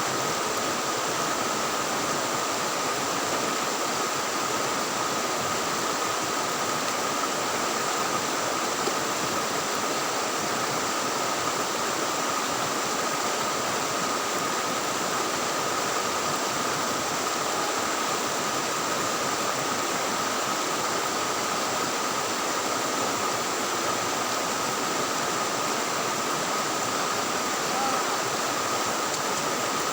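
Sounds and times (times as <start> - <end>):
river water rushing: 0.0 - 29.9
thin steady high tone: 13.0 - 29.9.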